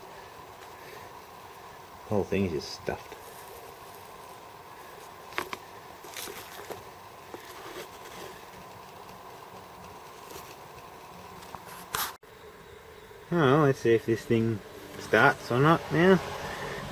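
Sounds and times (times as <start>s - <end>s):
steady background hum: 0.0s - 16.9s
handling clicks and rustles: 2.9s - 12.2s.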